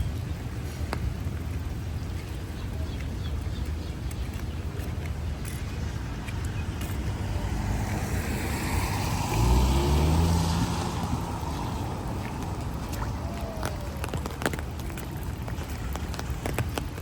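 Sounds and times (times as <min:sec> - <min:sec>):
steady low rumble: 0:00.0 - 0:17.0
vehicle engine passing: 0:05.4 - 0:16.5
tyres hissing on wet road: 0:05.7 - 0:16.8.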